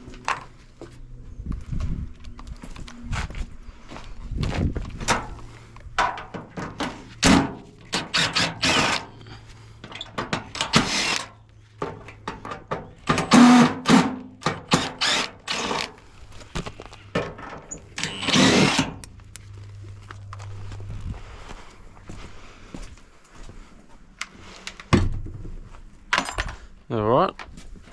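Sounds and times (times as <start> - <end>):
power tool bursts: 7.3 - 9.2, 10.6 - 11.3, 13.1 - 15.9, 18.0 - 19.0.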